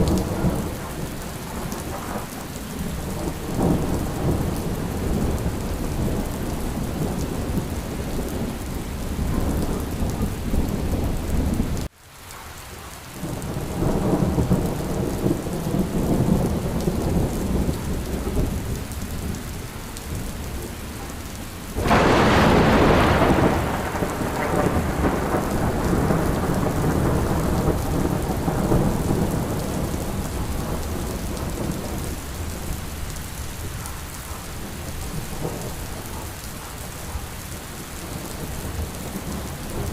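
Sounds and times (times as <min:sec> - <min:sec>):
low rolling thunder: 0:00.0 - 0:11.9, 0:13.2 - 0:39.9
steady rain: 0:00.0 - 0:39.9
loud thunderclap: 0:21.8 - 0:32.5.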